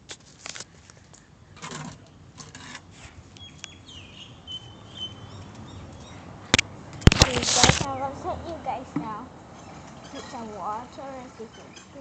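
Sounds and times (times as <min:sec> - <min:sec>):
soft rustling: 0:07.1 - 0:08.0.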